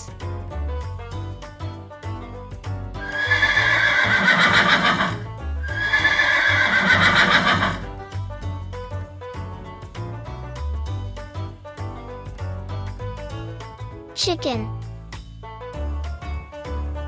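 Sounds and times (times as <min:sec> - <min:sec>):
children's background music: 0:00.0 - 0:17.0
horse neighing: 0:03.0 - 0:08.0.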